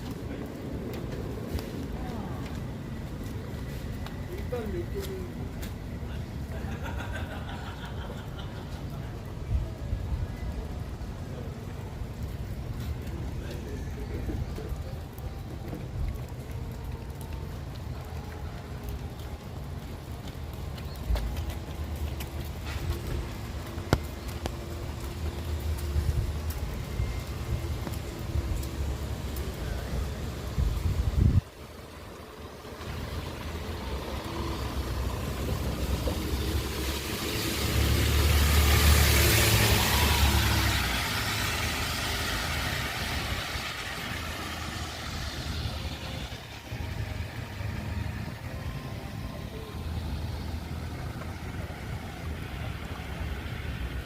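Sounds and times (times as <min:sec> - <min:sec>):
passing traffic: 0:00.0 - 0:54.0
rain: 0:00.0 - 0:54.0
wind rumbling on microphone: 0:09.0 - 0:47.2
tyre hiss on wet road: 0:22.2 - 0:48.9, 0:49.6 - 0:54.0.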